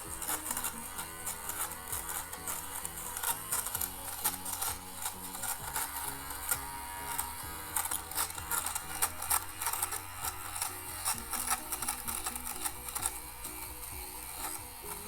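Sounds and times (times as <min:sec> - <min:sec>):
blade rasping on fabric: 0:00.0 - 0:15.0
lint remover motor humming: 0:00.0 - 0:15.0.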